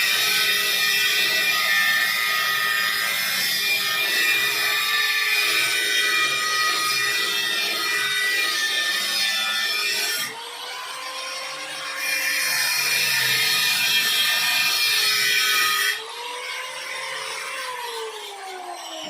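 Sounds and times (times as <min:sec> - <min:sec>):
angle grinder cutting steel: 0:00.0 - 0:19.0
grinder motor whine: 0:12.8 - 0:19.0.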